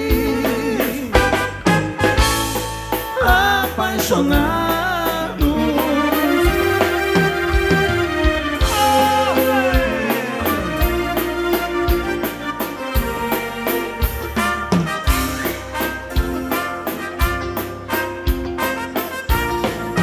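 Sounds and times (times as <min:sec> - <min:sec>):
dance band playing a waltz: 0:00.0 - 0:20.0.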